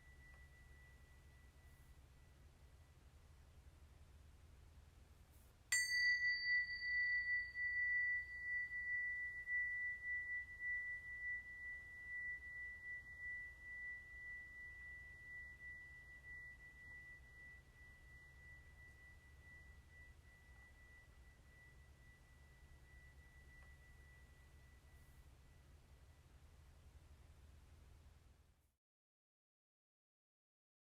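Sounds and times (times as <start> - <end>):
small metal chime struck: 0.0 - 2.3, 5.7 - 25.6.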